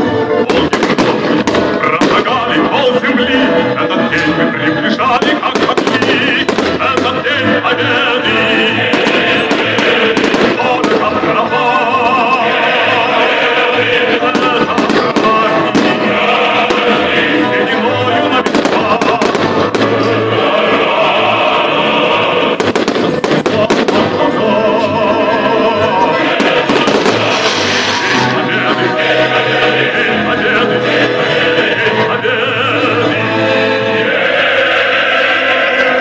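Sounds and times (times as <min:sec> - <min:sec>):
loud music with singing: 0:00.0 - 0:36.0
fireworks bursting: 0:00.5 - 0:02.8, 0:05.1 - 0:07.6, 0:08.6 - 0:12.3, 0:12.9 - 0:17.4, 0:18.2 - 0:20.8, 0:22.1 - 0:24.4, 0:26.2 - 0:29.5.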